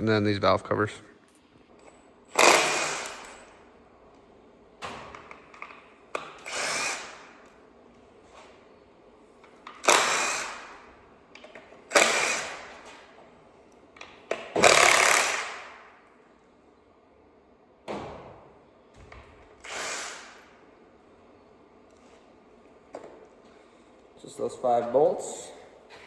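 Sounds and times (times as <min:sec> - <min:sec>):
power tool bursts: 0:02.3 - 0:03.5, 0:06.4 - 0:07.4, 0:09.8 - 0:10.8, 0:11.9 - 0:12.8, 0:14.6 - 0:15.8, 0:19.6 - 0:20.6.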